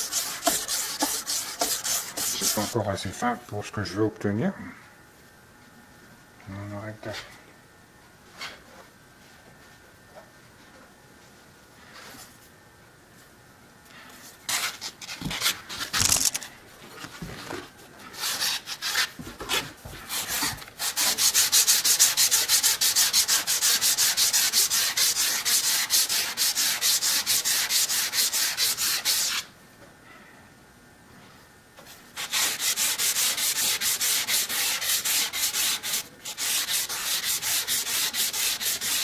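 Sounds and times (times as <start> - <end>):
steel blade rubbing on abrasive paper: 0.0 - 2.8, 20.1 - 29.5, 32.2 - 39.0.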